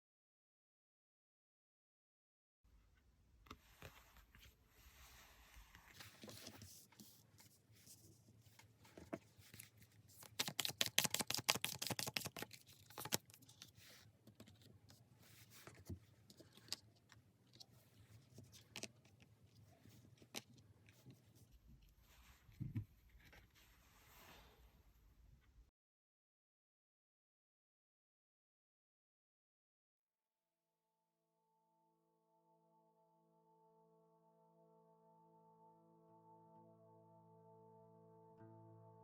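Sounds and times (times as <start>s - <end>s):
cards being shuffled: 5.6s - 7.5s, 8.5s - 14.7s, 15.4s - 19.2s
rapid card flicks: 10.2s - 13.2s.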